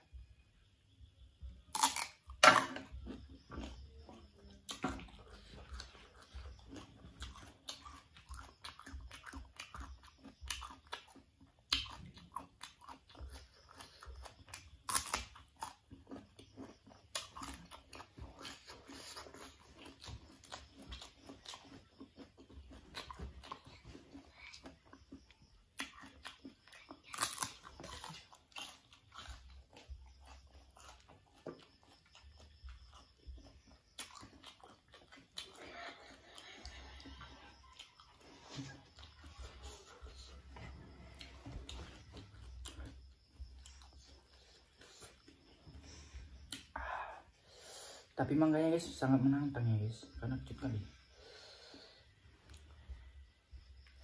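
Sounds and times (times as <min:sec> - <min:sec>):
crisp crunching bites of fruit: 0:01.7 - 0:02.8
wet chewing: 0:03.0 - 0:46.8.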